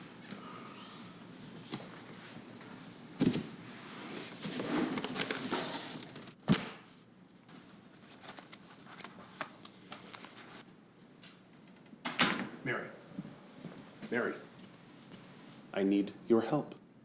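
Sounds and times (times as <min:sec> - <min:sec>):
rustling and handling noise: 0:01.2 - 0:11.9, 0:13.1 - 0:15.7.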